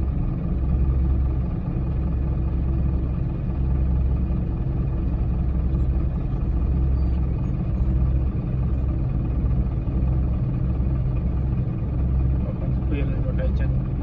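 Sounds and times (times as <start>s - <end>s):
diesel engine rumbling: 0.0s - 14.0s.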